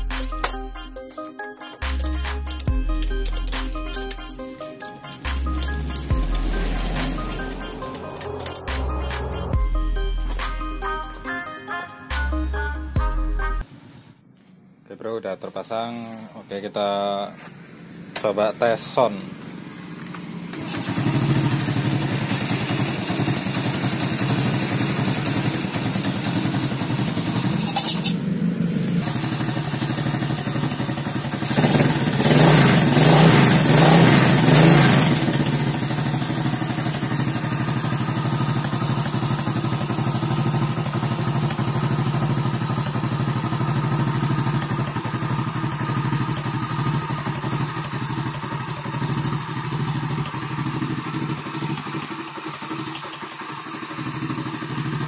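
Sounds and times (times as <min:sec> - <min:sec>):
single-cylinder engine running: 0:05.2 - 0:09.6, 0:19.3 - 0:55.0.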